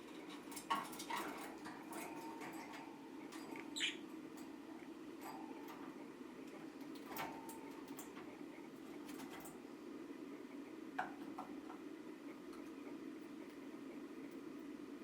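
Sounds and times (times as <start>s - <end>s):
steady low hum: 0.0s - 15.0s
budgerigar high chirp: 3.7s - 4.0s.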